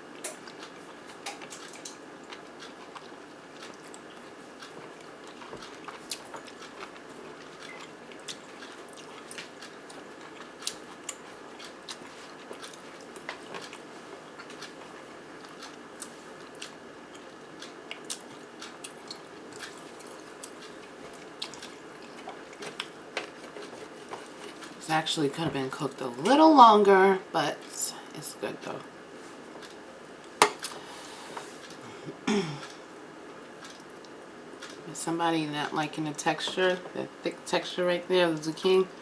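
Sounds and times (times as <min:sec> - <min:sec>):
steady background hiss: 0:00.0 - 0:39.0
chewing and wet mouth clicks: 0:00.2 - 0:13.8, 0:15.4 - 0:22.9, 0:33.6 - 0:34.8.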